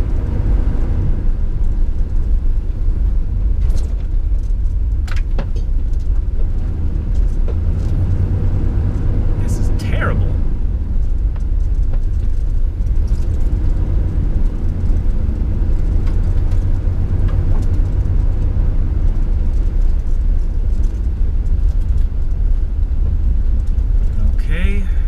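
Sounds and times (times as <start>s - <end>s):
low road rumble: 0.0s - 25.0s
light rattles and clicks: 3.4s - 8.1s, 10.9s - 24.4s.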